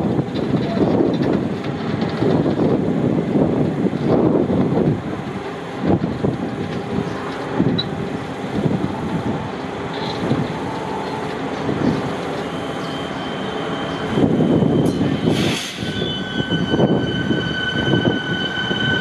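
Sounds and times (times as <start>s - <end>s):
electric train rumbling: 0.0s - 19.0s.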